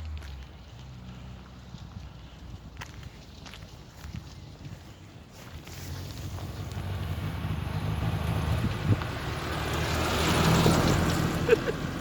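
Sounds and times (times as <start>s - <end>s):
tyre and road noise: 0.0s - 12.0s
car engine running low: 5.4s - 12.0s.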